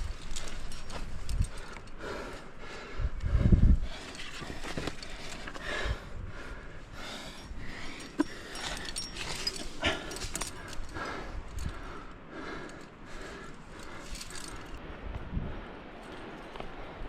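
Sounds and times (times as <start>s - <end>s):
climbing hardware jangling: 0.0s - 2.0s, 4.0s - 5.6s, 7.3s - 11.9s, 13.7s - 14.8s
heavy breathing: 0.2s - 14.8s.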